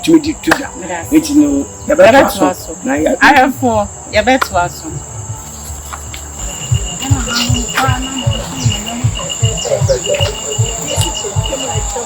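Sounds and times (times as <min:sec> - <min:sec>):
insects trilling: 0:00.0 - 0:12.0
regular low thumping: 0:04.3 - 0:12.0
bird calls: 0:04.4 - 0:12.0.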